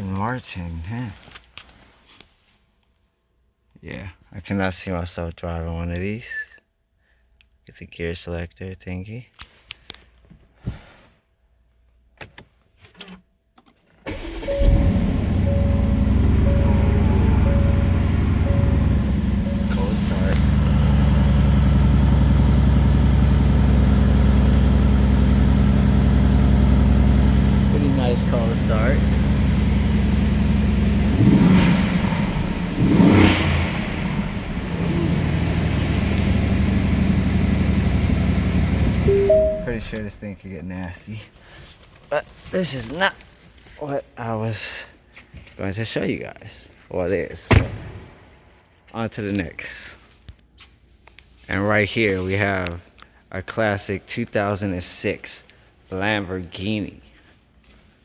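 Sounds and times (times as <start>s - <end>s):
car engine starting and idling: 14.1s - 40.4s.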